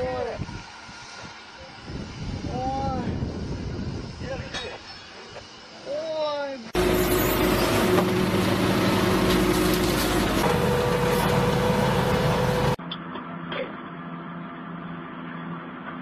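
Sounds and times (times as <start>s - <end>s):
engine hum: 6.8s - 12.8s
heavy machinery running: 6.8s - 12.8s.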